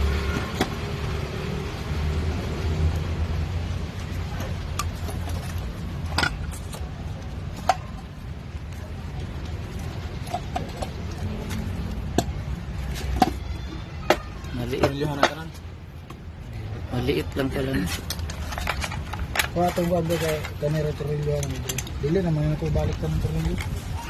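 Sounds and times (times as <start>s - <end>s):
metal parts clinking: 18.0s - 22.1s.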